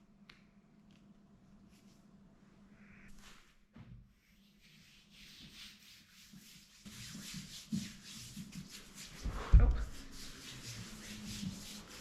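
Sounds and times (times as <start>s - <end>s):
hands rubbing lotion on skin: 4.2s - 12.0s.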